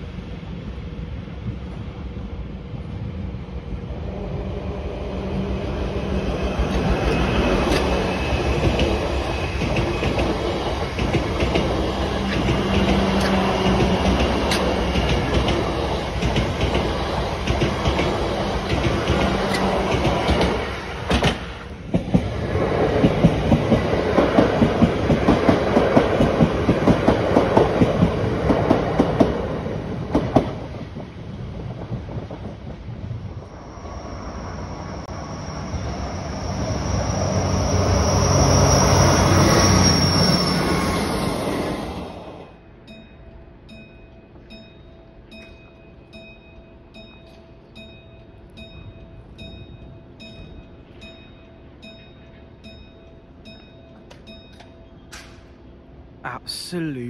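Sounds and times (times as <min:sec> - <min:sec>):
diesel train engine hum: 0:00.0 - 0:57.0
train wheels clattering over joints: 0:06.6 - 0:29.4
high wheel squeal: 0:33.7 - 0:42.1.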